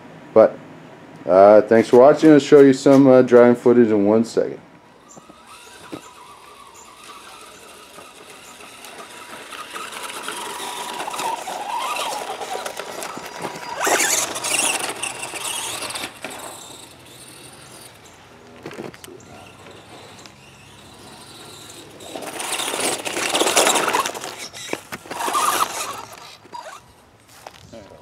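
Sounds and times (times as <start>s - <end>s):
rc truck electric motor whining: 4.8s - 27.0s.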